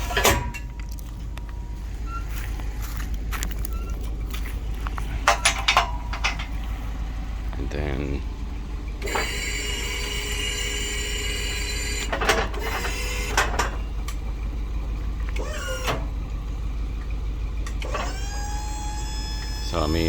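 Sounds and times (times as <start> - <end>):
metal clanks: 0.0 - 1.3, 3.8 - 6.8
crane drive whining: 0.0 - 20.0
truck engine low hum: 0.0 - 20.0
short squeaks: 3.4 - 4.4, 17.6 - 20.0.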